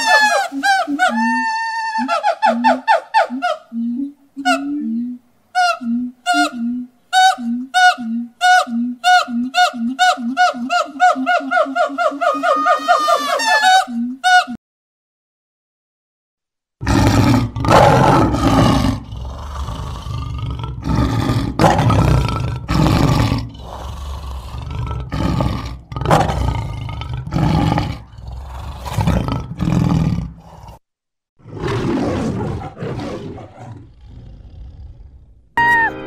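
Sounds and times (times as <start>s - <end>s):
lion roaring: 16.8s - 30.8s, 31.4s - 35.4s.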